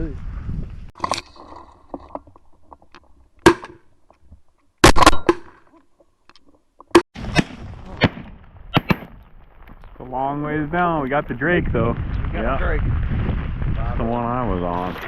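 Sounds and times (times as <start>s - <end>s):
shotgun blasts: 7.2s - 9.2s.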